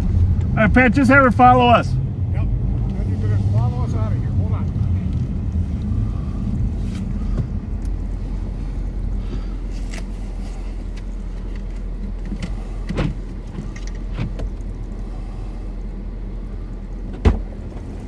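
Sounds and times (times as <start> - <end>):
car engine rumble inside cabin: 0.0 - 18.0.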